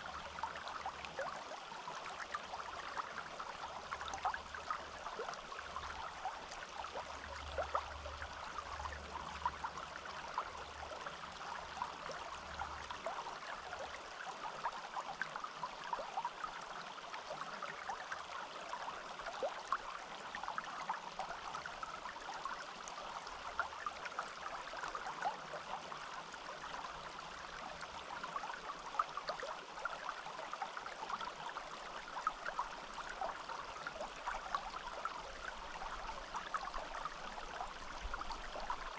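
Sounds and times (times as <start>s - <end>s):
stream babbling over stones: 0.0s - 38.9s.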